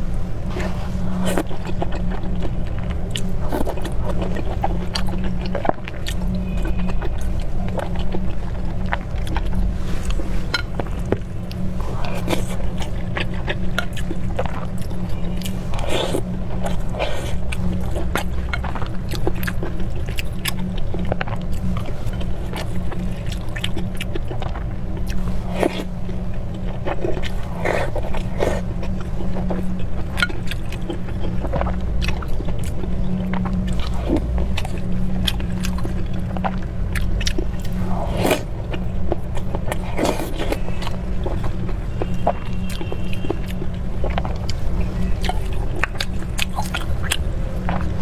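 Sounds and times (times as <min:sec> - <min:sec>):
person chewing food: 0:00.0 - 0:48.0
steady low rumble: 0:00.0 - 0:48.0.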